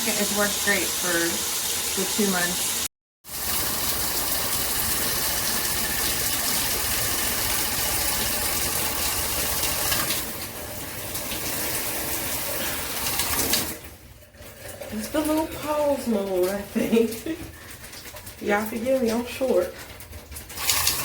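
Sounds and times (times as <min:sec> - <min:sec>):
shower head spraying water: 0:00.0 - 0:10.2.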